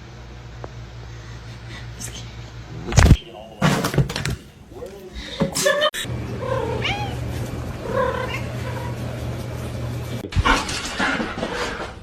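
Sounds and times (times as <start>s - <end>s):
cat meowing: 6.4s - 7.2s.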